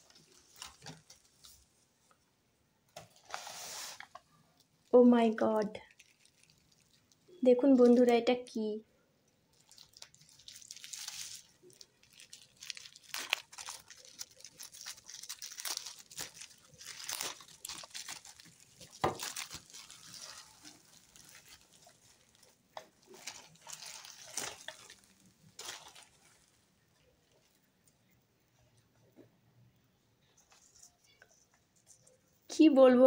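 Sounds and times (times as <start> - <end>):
wrapping paper rustling: 0.0 - 1.7, 3.1 - 5.0, 5.7 - 8.1, 9.5 - 27.9.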